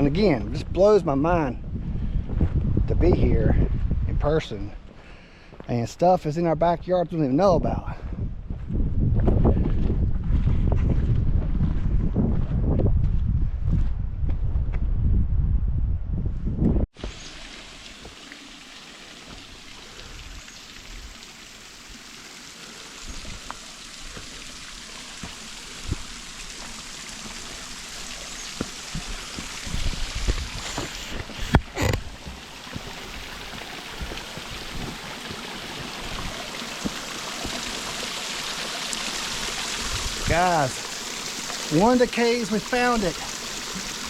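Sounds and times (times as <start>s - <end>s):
waterfall splashing on rock: 17.0s - 44.0s.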